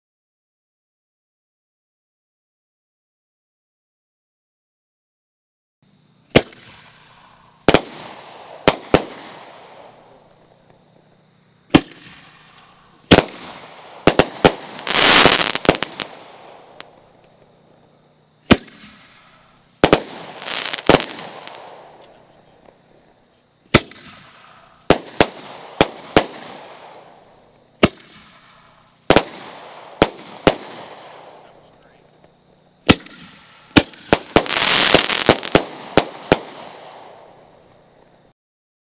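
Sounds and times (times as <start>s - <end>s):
firework crackle and sizzle: 6.2s - 11.1s, 11.7s - 38.3s
firework shells bursting: 11.7s - 17.6s, 18.4s - 23.1s, 23.7s - 31.6s, 32.2s - 37.8s.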